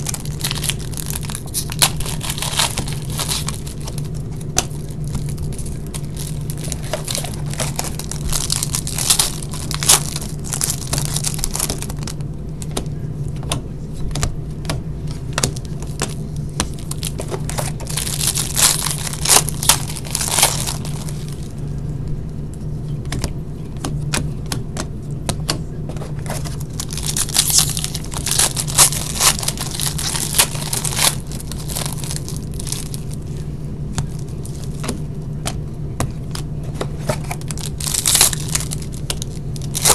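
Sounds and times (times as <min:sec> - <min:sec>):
wrapping tearing and crinkling: 0:00.0 - 0:12.2, 0:15.4 - 0:21.6, 0:26.0 - 0:35.0, 0:36.2 - 0:39.9
steady low hum: 0:00.0 - 0:39.9.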